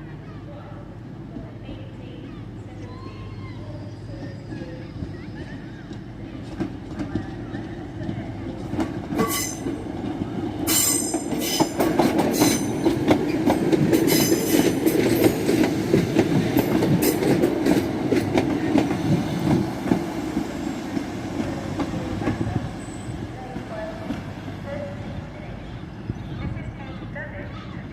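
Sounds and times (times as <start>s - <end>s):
train wheels clicking on rails: 4.2s - 24.5s.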